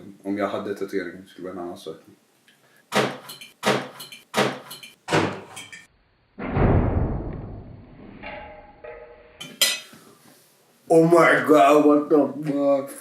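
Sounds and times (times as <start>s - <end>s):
loud deep thud: 6.4s - 7.8s.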